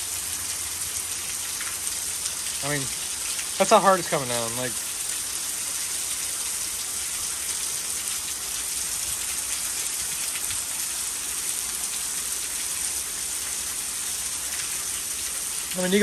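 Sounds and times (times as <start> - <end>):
heavy rain hissing: 0.0 - 5.7, 15.4 - 16.0
water pouring off roof: 0.0 - 16.0
water splashing onto lawn: 0.0 - 16.0.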